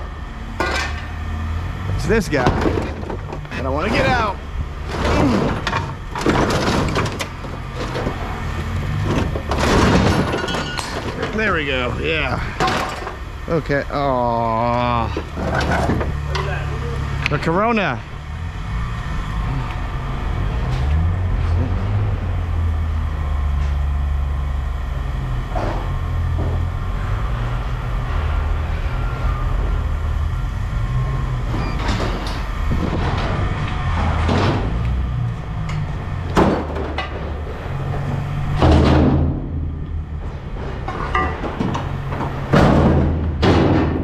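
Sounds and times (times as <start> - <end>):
vehicle low rumble: 0.0 - 44.0
metallic knocks and clunks: 0.6 - 1.2, 2.3 - 3.6, 4.8 - 11.5, 31.5 - 44.0.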